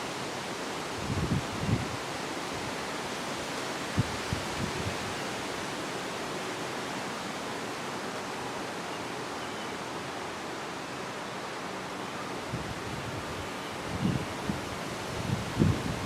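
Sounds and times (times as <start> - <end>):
wind buffeting microphone: 1.0 - 2.0, 12.5 - 16.0.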